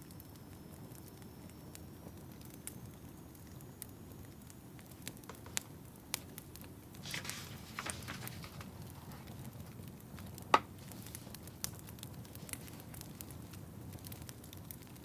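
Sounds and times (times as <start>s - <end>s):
wood fire crackling: 0.0s - 15.0s
fire hissing flare: 4.5s - 15.0s.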